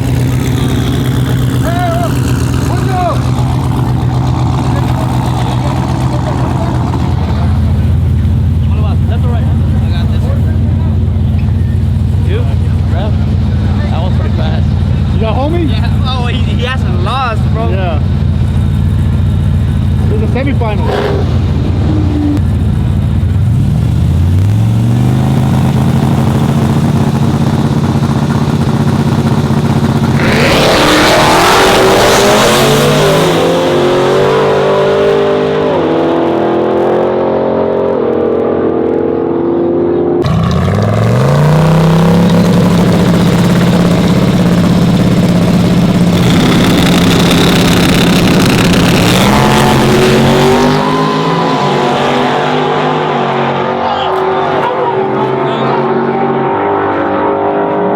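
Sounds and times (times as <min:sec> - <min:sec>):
truck engines revving: 0:00.0 - 0:57.9.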